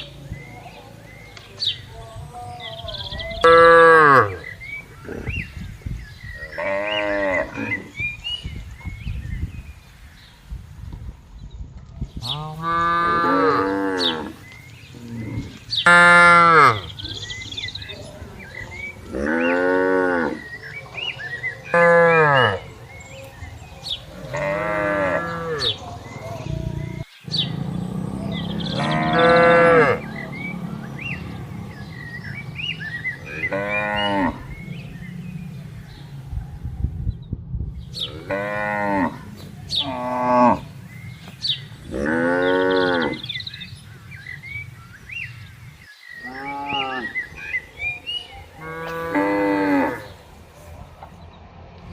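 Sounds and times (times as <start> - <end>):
cattle mooing: 12.3 - 14.4, 19.0 - 20.6, 24.1 - 35.7, 38.0 - 40.7, 41.8 - 43.3, 48.6 - 50.2.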